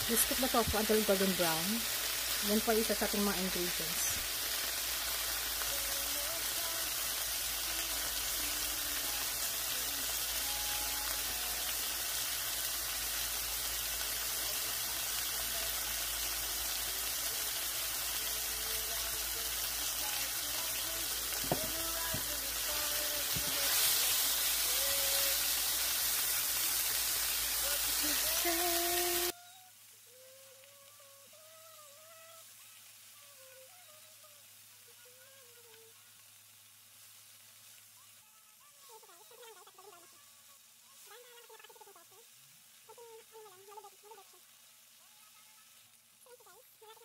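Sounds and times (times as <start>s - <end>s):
tofu sizzling in oil: 0.0s - 47.0s
spatula turning food: 20.1s - 27.0s.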